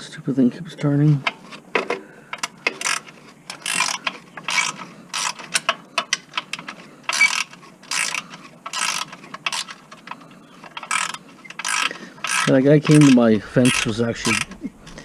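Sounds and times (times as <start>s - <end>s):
ratchet wrench clicking: 2.4s - 9.8s, 10.6s - 14.6s.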